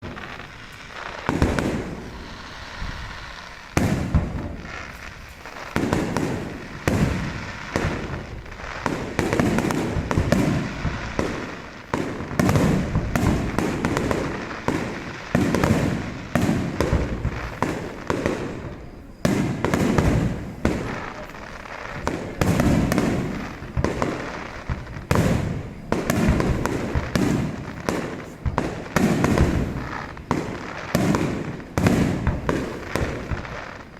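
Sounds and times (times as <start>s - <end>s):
fireworks shells bursting: 0.0s - 33.9s.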